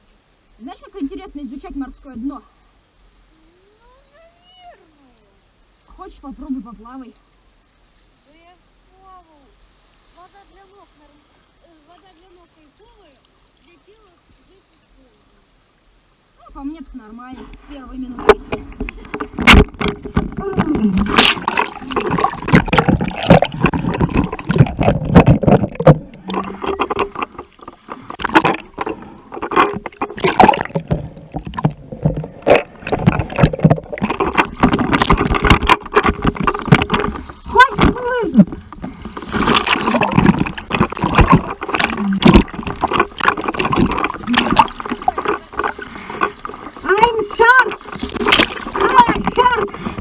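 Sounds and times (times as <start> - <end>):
sea water splashing and gurgling: 17.4 - 50.0.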